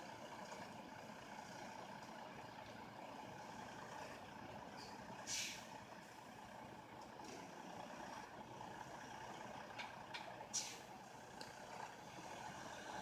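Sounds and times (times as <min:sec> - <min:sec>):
distant truck engine running: 0:00.0 - 0:13.0
air brake hisses: 0:05.2 - 0:05.7, 0:10.5 - 0:10.9.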